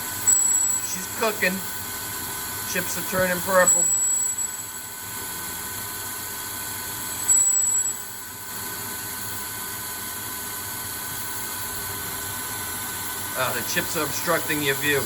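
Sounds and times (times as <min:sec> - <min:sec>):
lathe machine whine and hiss: 0:00.0 - 0:15.0.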